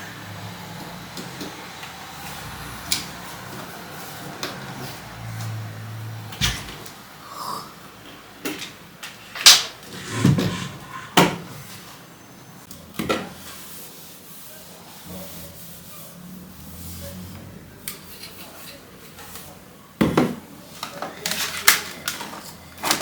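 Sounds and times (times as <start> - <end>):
rubbing: 9.9 - 11.8.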